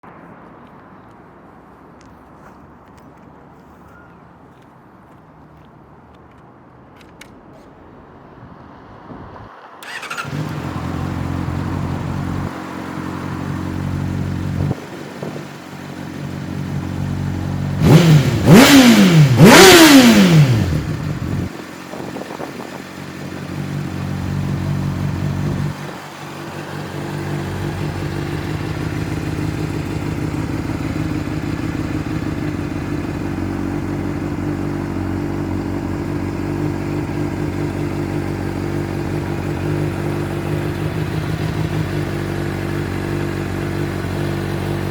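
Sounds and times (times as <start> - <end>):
motorcycle engine idling and revving: 9.8 - 44.9.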